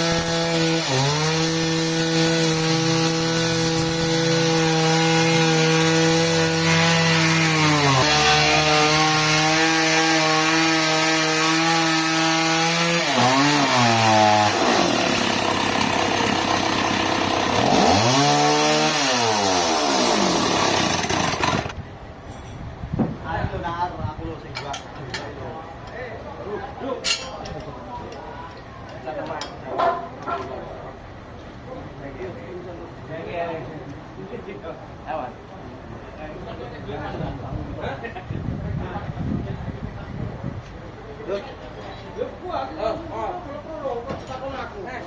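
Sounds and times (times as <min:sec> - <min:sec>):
petrol saw cutting log: 0:00.0 - 0:21.8.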